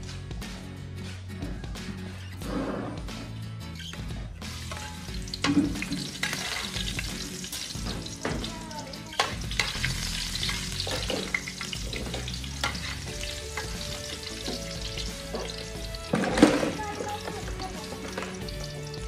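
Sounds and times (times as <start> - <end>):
metal spatula scraping a wok: 4.5 - 5.2, 5.8 - 7.0, 9.2 - 16.5
garlic sizzling in oil: 4.5 - 19.0.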